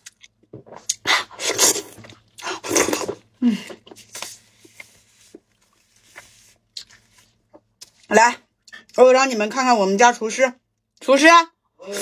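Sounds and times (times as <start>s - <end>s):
wet chewing and mouth smacking: 0.0s - 3.0s, 6.0s - 9.0s.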